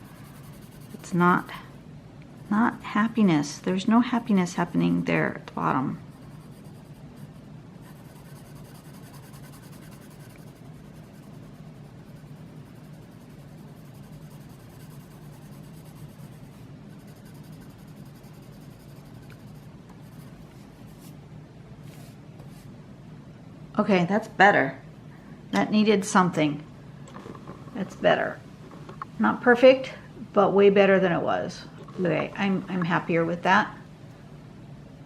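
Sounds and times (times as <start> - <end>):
pencil scratching on paper: 0.0 - 1.6, 4.2 - 21.1.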